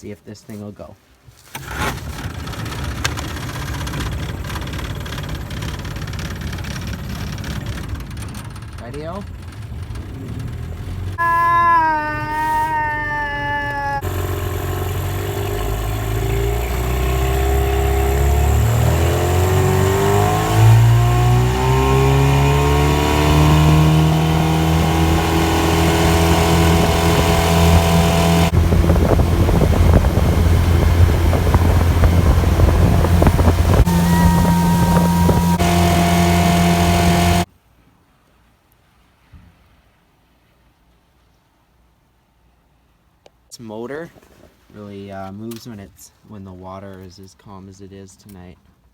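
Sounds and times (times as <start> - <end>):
outboard motor revving: 1.5 - 37.5.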